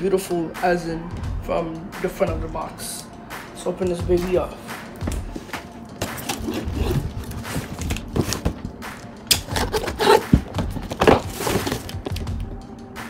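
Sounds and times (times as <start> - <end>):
cardboard box being opened: 6.0 - 8.6, 9.4 - 12.2.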